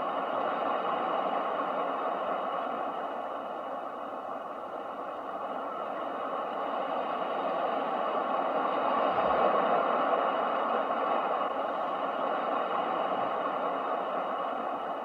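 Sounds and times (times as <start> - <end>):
ocean waves breaking: 5.3 - 15.0.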